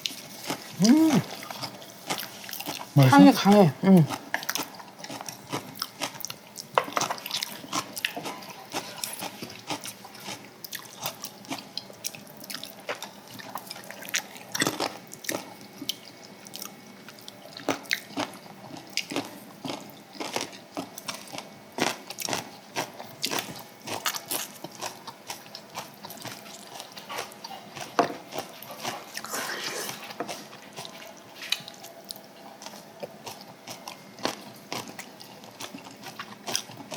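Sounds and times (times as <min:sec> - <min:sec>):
wet chewing and mouth clicks: 0:00.0 - 0:36.9.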